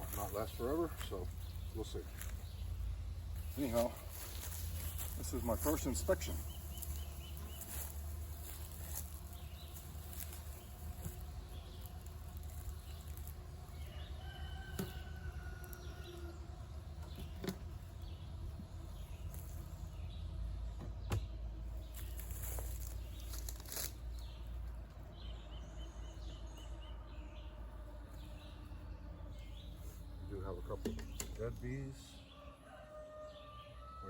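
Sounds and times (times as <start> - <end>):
honeybees buzzing: 0.0 - 33.8
knocks from handling hive: 14.6 - 15.0, 30.8 - 31.4.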